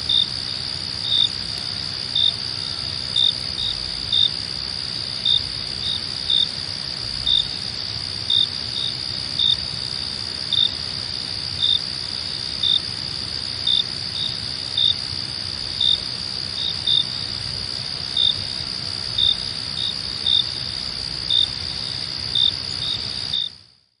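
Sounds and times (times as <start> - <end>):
high cricket trill: 0.0 - 23.8
short cricket chirps: 13.6 - 23.7.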